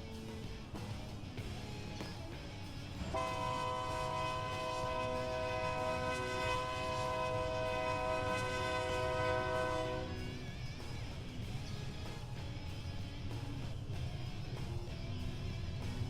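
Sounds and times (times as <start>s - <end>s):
multi-note train horn blast: 3.0s - 10.4s.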